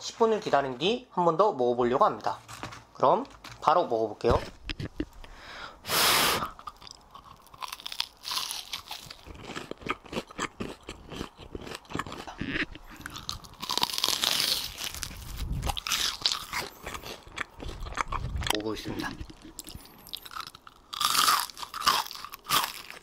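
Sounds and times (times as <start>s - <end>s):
crunchy chewing: 6.4s - 23.0s.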